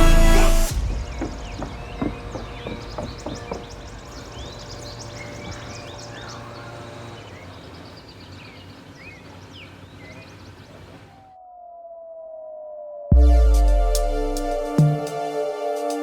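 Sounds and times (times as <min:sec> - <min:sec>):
birds chirping and calling: 0:01.2 - 0:11.4.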